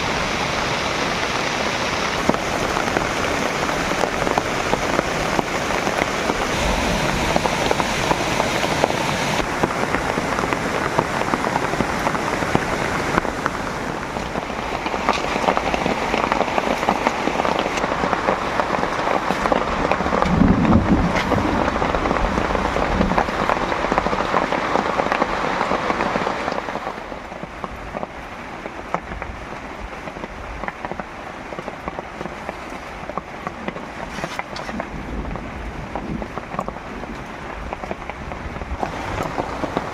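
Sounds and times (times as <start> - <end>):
heavy rain falling: 0.0 - 39.9
low rumble: 2.1 - 16.1, 19.6 - 24.2.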